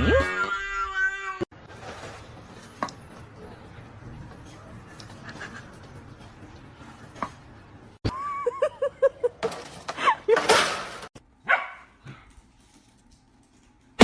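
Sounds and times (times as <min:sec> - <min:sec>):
dog barking and yipping: 0:11.4 - 0:11.9.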